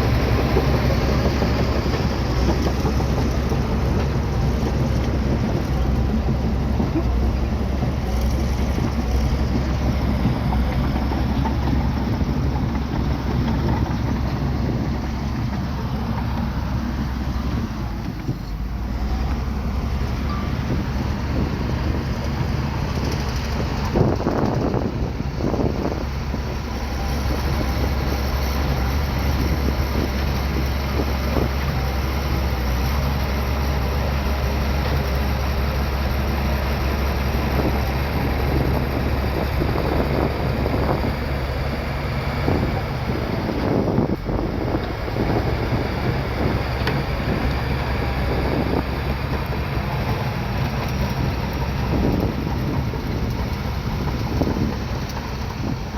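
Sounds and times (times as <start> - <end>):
diesel engine droning: 0.0 - 55.9.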